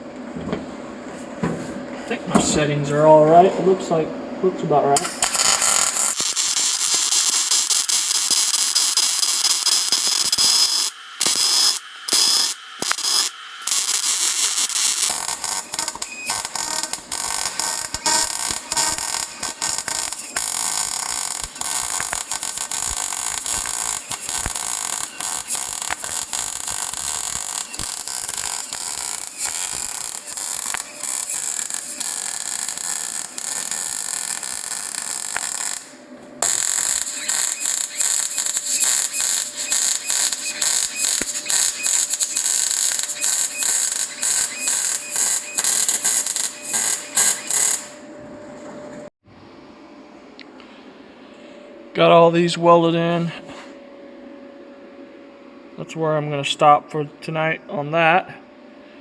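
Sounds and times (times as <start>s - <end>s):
electric welder hissing: 4.8s - 48.1s.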